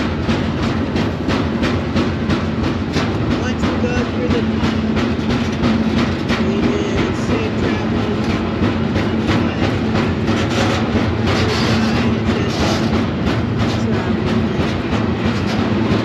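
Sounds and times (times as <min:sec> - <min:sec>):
constant hum: 0:00.0 - 0:16.0
irregular rail clacks: 0:00.0 - 0:16.0
train wheels rumbling on rail: 0:00.0 - 0:16.0.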